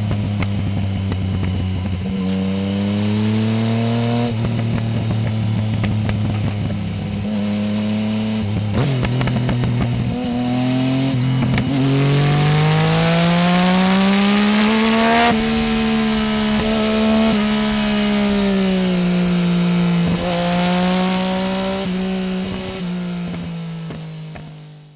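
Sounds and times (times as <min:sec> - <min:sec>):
motorcycle engine revving: 0:00.0 - 0:24.9
exhaust crackling: 0:11.1 - 0:24.0.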